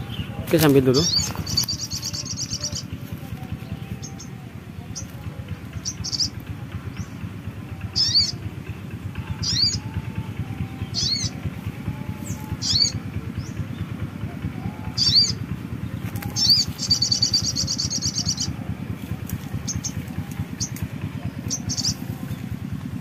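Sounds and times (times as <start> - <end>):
small birds calling: 0.0 - 23.0
rustle of leaves: 14.9 - 23.0.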